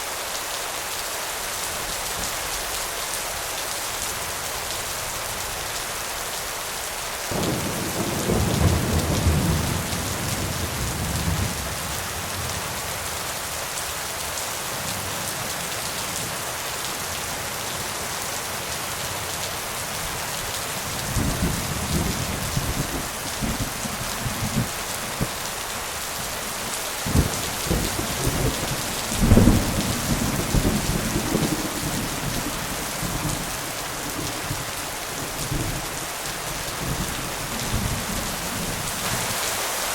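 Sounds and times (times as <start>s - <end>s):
steady rain: 0.0s - 39.9s
rolling thunder: 27.0s - 33.4s.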